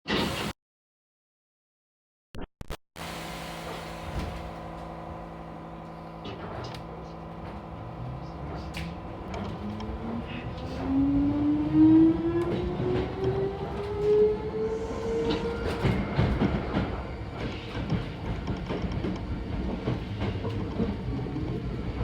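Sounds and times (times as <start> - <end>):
train equipment hum: 3.2 - 22.0
traction motor whine rising: 9.1 - 19.1.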